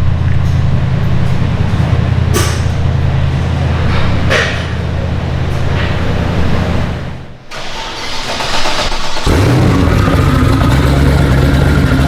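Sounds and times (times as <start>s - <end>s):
machine engine droning: 9.2s - 12.0s.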